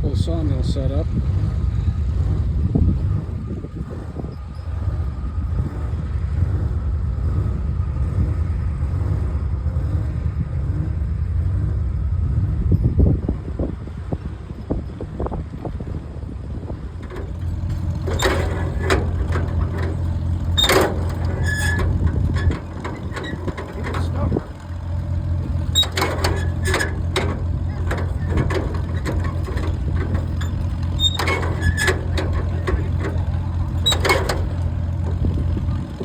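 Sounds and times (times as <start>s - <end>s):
engine running: 0.0s - 36.0s
clatter and knocks: 16.9s - 36.0s.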